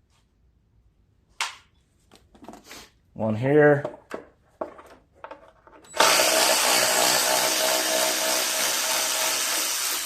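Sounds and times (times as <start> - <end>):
power drill-driver running: 5.9 - 10.0.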